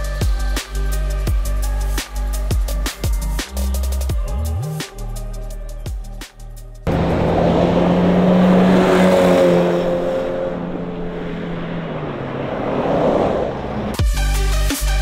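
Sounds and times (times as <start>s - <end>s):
car engine driving away: 6.8s - 14.0s
road and tyre noise: 6.8s - 14.2s.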